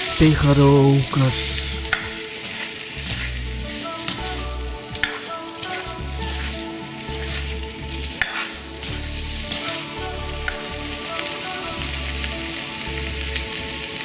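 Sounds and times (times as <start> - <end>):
potatoes sizzling in oil: 0.0 - 14.0
wooden spatula scraping pan: 5.0 - 9.8.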